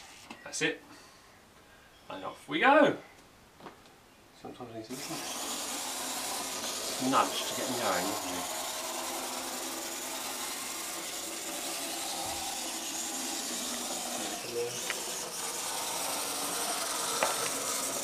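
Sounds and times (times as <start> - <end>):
model train motor whir: 0.0 - 0.3, 4.9 - 18.0.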